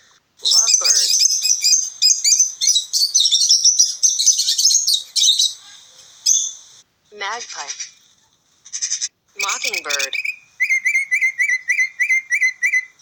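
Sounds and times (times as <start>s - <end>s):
bird chattering high chirps: 0.4s - 5.7s, 8.7s - 13.0s.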